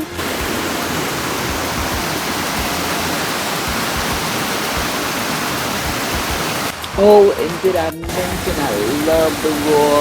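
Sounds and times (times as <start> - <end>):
waterfall rushing water: 0.0 - 10.0.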